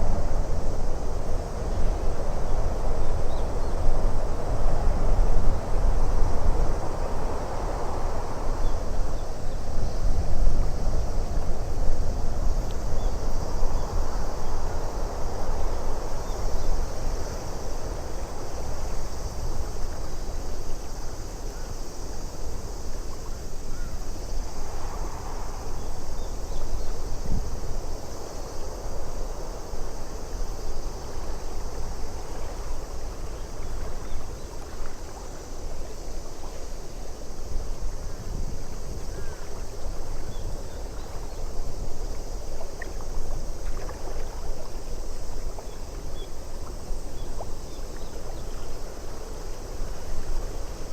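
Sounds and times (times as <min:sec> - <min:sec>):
steady wind: 0:00.0 - 0:50.9
lake water lapping: 0:39.2 - 0:50.6.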